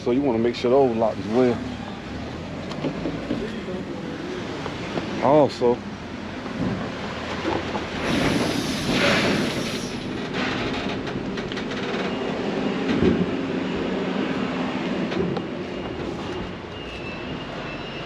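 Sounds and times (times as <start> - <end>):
heavy vehicle rumble: 0.0 - 18.0.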